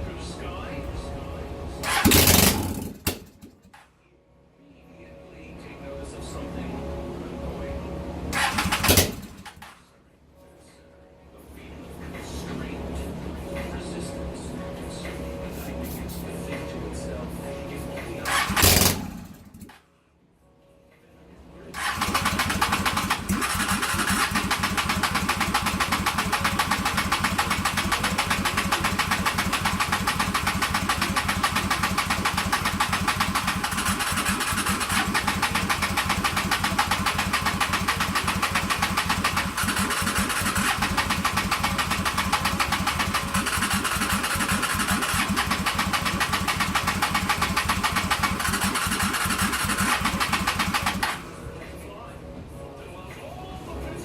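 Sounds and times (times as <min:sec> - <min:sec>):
motorcycle starter cranking: 0:01.8 - 0:03.7, 0:08.3 - 0:09.7, 0:18.3 - 0:19.8, 0:21.8 - 0:51.3.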